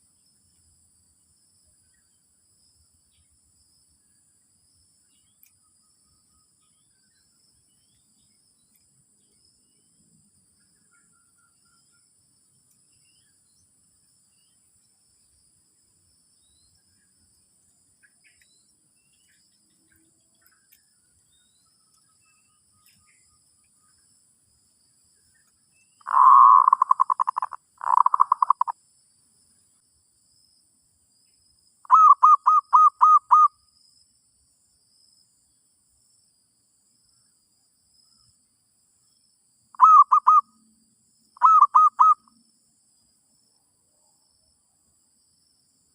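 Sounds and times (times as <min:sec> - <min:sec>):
dove cooing: 0:26.0 - 0:28.7, 0:31.9 - 0:33.5, 0:39.8 - 0:40.4, 0:41.4 - 0:42.2.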